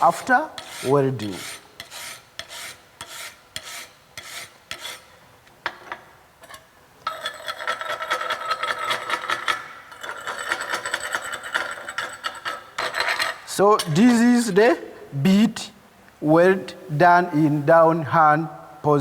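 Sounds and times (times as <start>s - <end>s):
wire brush scrubbing metal: 0.0s - 5.1s.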